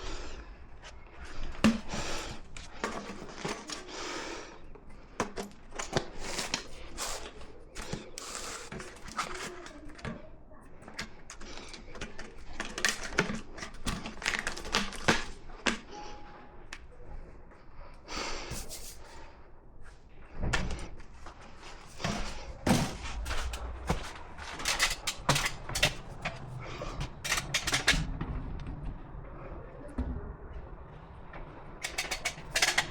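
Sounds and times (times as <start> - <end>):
hand tools knocking and clattering: 22.0 - 28.2, 31.8 - 32.9.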